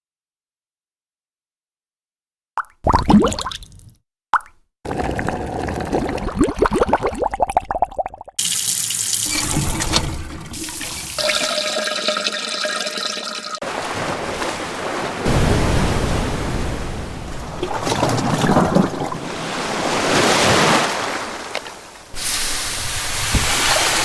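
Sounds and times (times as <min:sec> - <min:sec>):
rushing wash of water: 0:08.4 - 0:24.0.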